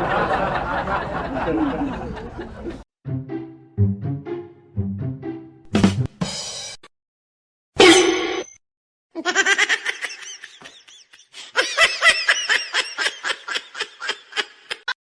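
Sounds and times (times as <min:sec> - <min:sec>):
person laughing: 0:09.2 - 0:15.0.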